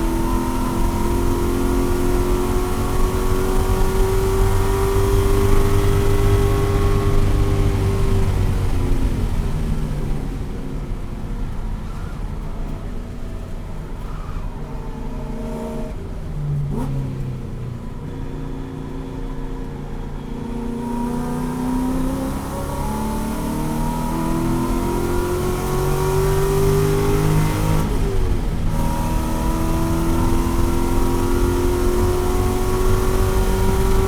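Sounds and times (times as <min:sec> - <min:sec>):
race car engine revving: 0:00.0 - 0:09.5, 0:20.8 - 0:34.0.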